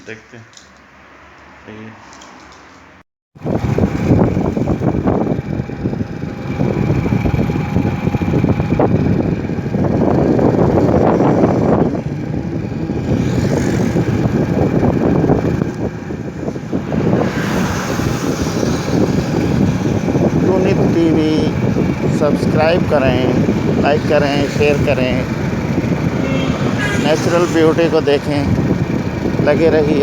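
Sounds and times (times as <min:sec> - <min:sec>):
motorcycle running: 0:03.4 - 0:30.0
wind rush over microphone: 0:03.4 - 0:30.0.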